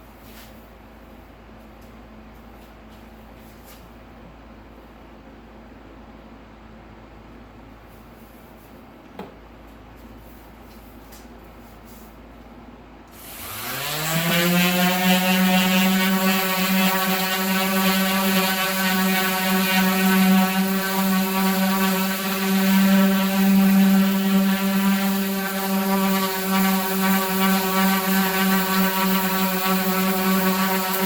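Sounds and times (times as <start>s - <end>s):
power tool motor spinning: 13.2s - 31.0s.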